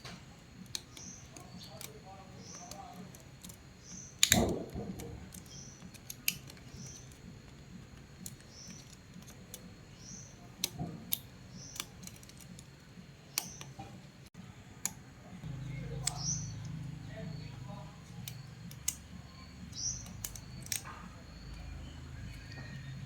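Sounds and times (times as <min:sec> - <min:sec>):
metal clicks and taps: 0:00.0 - 0:12.7, 0:13.3 - 0:14.0, 0:18.0 - 0:21.6.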